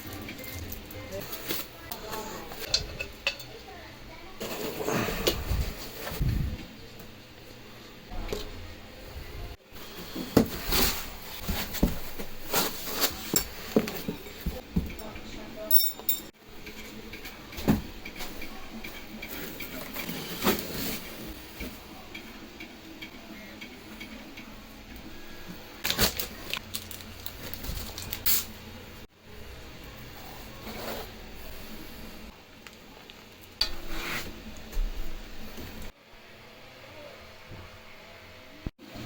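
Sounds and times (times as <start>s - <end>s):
packaging rustling: 25.8s - 28.5s.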